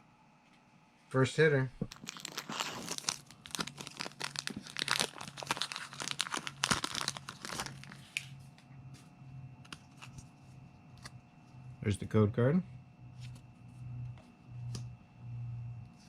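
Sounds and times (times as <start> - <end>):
foil wrapper tearing and crinkling: 1.8 - 8.2.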